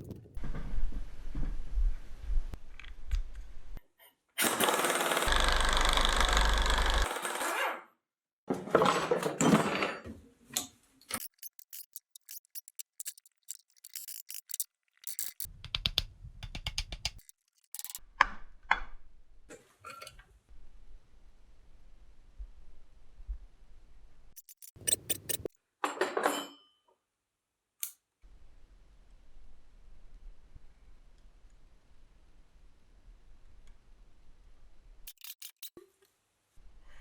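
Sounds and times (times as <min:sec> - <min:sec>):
loud steady tool noise: 0:04.5 - 0:07.3
rapid clicks and knocks: 0:11.2 - 0:18.0, 0:24.4 - 0:25.5.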